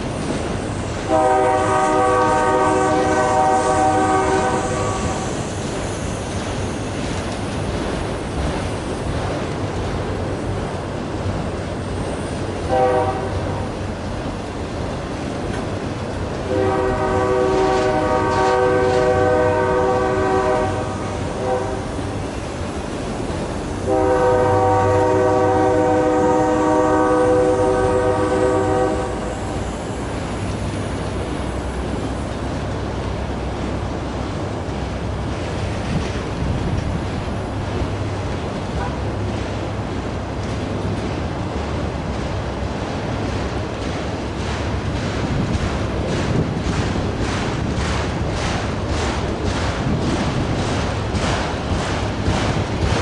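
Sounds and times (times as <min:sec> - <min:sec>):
freight train rumbling: 0:00.0 - 0:53.0
locomotive air horn blasts: 0:01.1 - 0:05.2, 0:12.7 - 0:13.6, 0:16.4 - 0:22.0, 0:23.8 - 0:29.6, 0:38.8 - 0:39.1.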